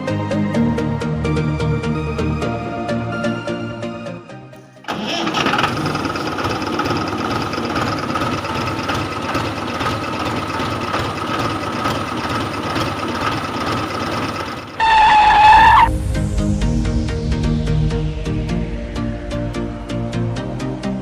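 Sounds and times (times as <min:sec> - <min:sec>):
constant whine: 0:04.8 - 0:21.0
engine running: 0:04.8 - 0:21.0
loud pitched tone: 0:14.8 - 0:16.1.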